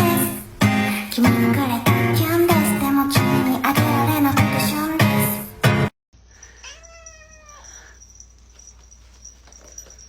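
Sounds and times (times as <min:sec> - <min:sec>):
person singing: 0:00.0 - 0:05.7.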